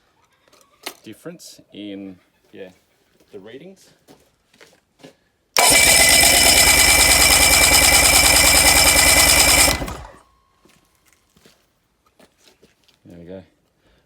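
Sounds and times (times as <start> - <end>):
outboard engine starter cranking: 5.6 - 10.2.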